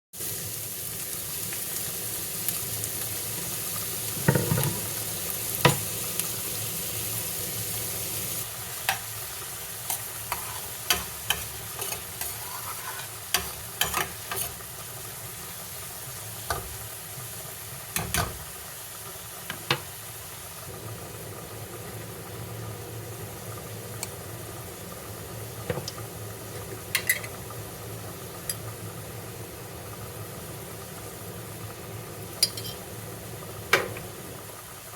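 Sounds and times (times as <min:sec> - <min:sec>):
food sizzling in a pan: 0:00.1 - 0:34.9
utensil clinking against pan: 0:32.4 - 0:32.8.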